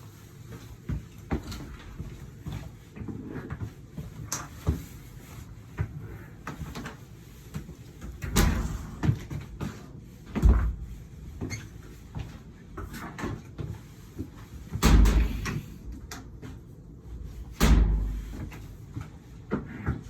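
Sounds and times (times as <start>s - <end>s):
door thudding shut: 14.8s - 15.6s, 17.6s - 18.3s.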